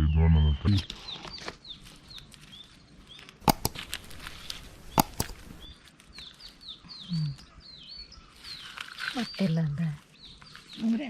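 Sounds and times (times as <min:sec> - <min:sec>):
small birds chirping: 0:00.0 - 0:11.0
sharp knocks: 0:03.5 - 0:03.9, 0:05.0 - 0:05.5.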